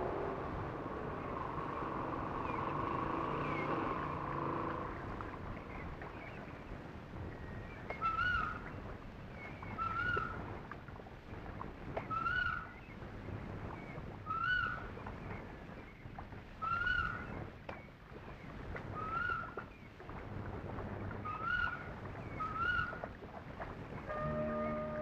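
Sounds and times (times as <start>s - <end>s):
steady outdoor hiss: 0.0s - 19.0s, 19.8s - 25.0s
bird calling: 24.1s - 25.0s.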